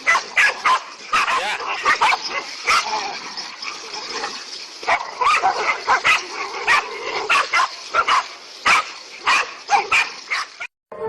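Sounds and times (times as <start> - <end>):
dog barking and yelping: 0.0 - 2.9, 4.8 - 10.7.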